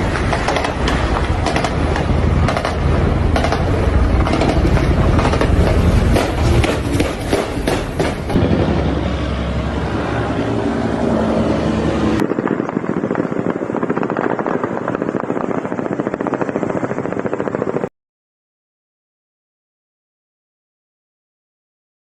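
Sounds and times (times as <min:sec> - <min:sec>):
helicopter rotor noise: 0:00.0 - 0:17.9.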